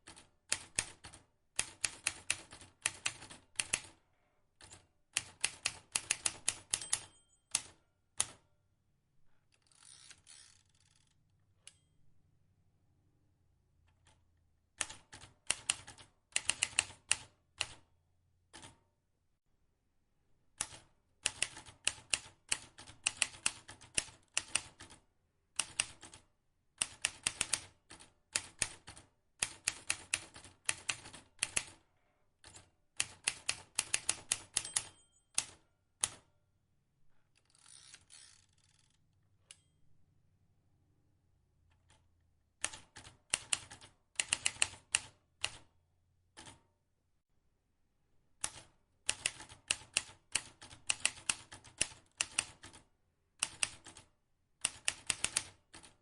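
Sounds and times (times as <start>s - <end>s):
typewriter keys clicking: 32.5s - 36.2s, 42.6s - 45.6s, 48.4s - 52.8s, 53.4s - 54.0s, 54.6s - 56.0s.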